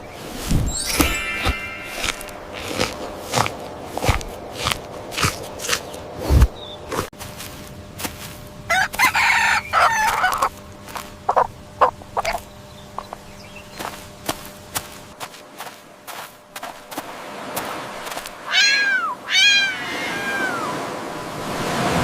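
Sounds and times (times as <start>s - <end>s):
chicken clucking: 8.7s - 10.5s, 11.3s - 13.2s
rooster crowing: 8.7s - 10.5s.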